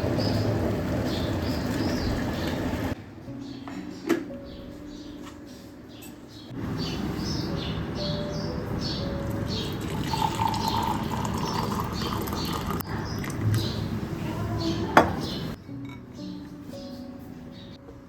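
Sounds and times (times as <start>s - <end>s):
small birds chirping: 0.0s - 17.8s
water running from a tap: 9.7s - 13.4s.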